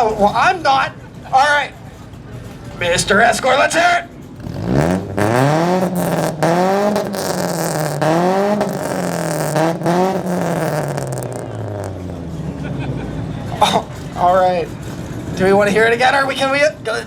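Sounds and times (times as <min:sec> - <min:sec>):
car engine revving: 0:04.1 - 0:15.6.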